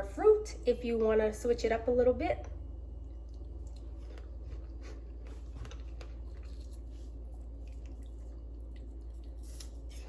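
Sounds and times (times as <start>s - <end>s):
low hum: 0.0s - 10.0s
person chewing fruit: 3.0s - 10.0s.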